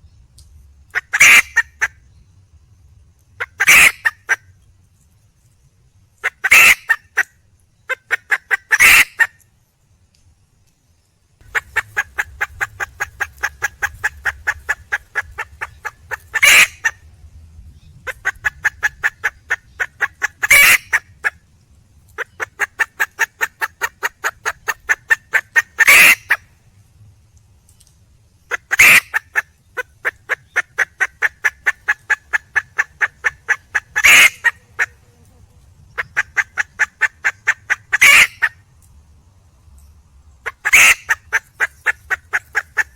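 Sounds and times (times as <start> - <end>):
hen clucking rapidly: 0.9 - 1.9, 3.4 - 4.4, 6.2 - 7.3, 7.9 - 9.3, 11.4 - 17.0, 18.0 - 21.4, 22.2 - 26.4, 28.5 - 35.0, 35.9 - 38.5, 40.4 - 42.9
loud hen call: 3.6 - 4.1, 6.4 - 6.9, 8.2 - 9.3, 11.5 - 16.9, 18.1 - 21.3, 22.7 - 26.4, 28.7 - 29.3, 30.1 - 35.0, 36.0 - 38.5, 40.5 - 42.9.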